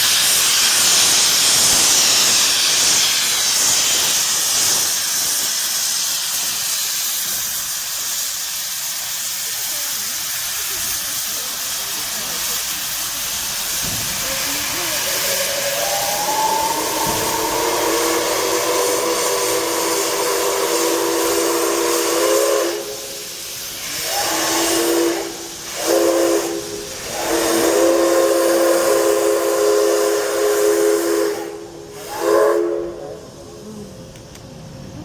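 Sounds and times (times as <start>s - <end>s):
hiss of escaping steam: 0.0s - 35.0s
steam whistle blowing: 15.2s - 23.4s, 24.0s - 33.4s.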